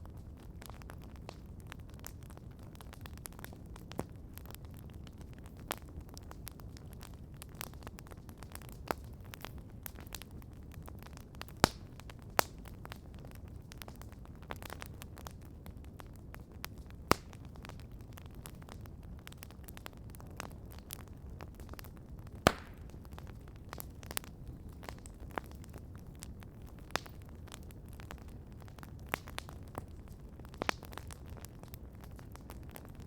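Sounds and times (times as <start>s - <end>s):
campfire crackling: 0.0s - 33.0s
fire popping sharply: 16.6s - 33.0s.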